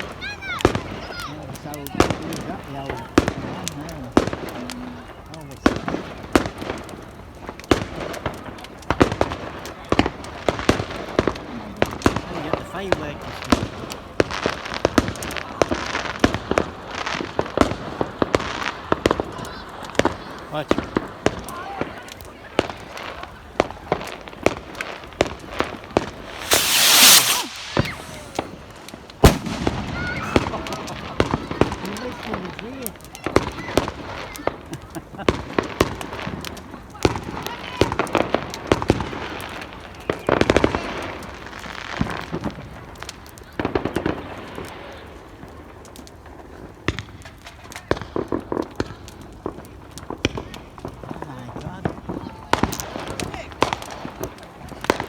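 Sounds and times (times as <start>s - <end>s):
fireworks bangs and cracks: 0.0s - 55.0s
fireworks hissing crackle: 0.0s - 55.0s
fireworks sharp bangs: 23.9s - 32.5s.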